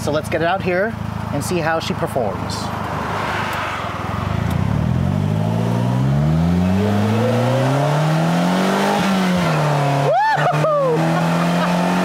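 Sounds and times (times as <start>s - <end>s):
car engine accelerating: 2.7s - 12.0s.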